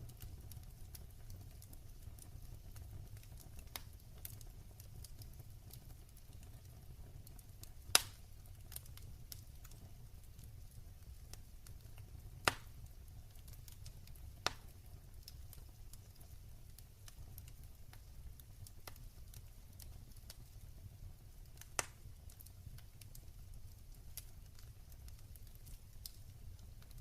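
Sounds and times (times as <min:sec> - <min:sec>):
low rumble of flames: 0:00.0 - 0:27.0
wood fire crackling: 0:00.0 - 0:27.0
sharp fire pops: 0:07.7 - 0:09.8, 0:12.4 - 0:13.0, 0:13.7 - 0:15.7, 0:21.5 - 0:23.3.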